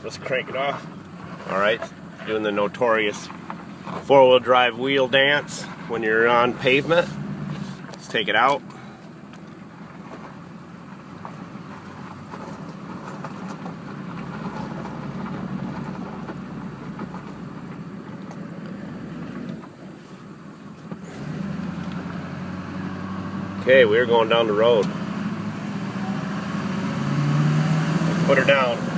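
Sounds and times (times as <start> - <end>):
diesel truck engine drone: 0.0 - 28.9
tyre and road noise: 0.0 - 28.9.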